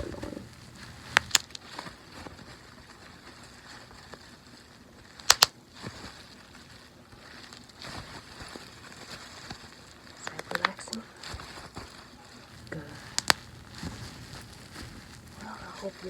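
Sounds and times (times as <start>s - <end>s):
oily hands rubbing: 0.0s - 1.7s, 11.3s - 16.0s.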